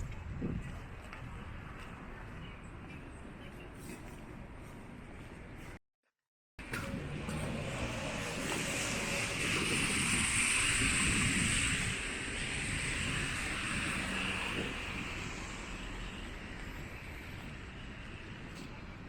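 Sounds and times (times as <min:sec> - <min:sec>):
rain on wet street: 0:07.6 - 0:16.5.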